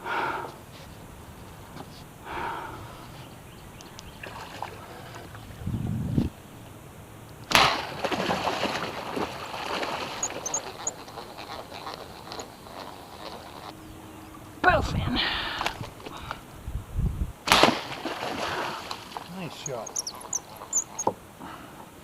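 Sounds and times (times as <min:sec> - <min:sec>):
fish splashing in water: 0:04.2 - 0:05.4, 0:07.5 - 0:13.8, 0:17.4 - 0:21.0.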